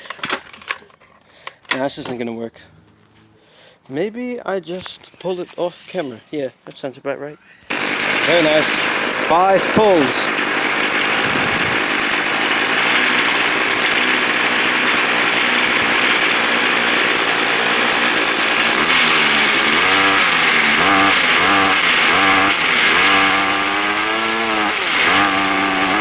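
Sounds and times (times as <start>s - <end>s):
string trimmer engine revving: 7.7s - 26.0s.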